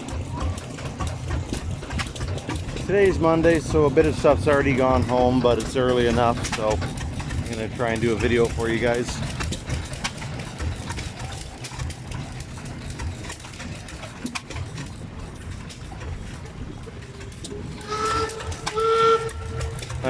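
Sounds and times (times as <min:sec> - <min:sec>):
engines rumbling: 0:00.0 - 0:20.0
two-tone steam whistle: 0:17.8 - 0:20.0.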